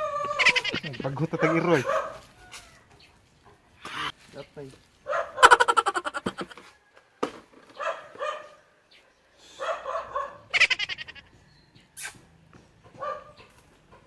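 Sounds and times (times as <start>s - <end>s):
dog barking and yelping: 0.0s - 2.4s, 5.1s - 6.5s, 7.8s - 8.6s, 9.6s - 11.3s, 12.8s - 14.0s.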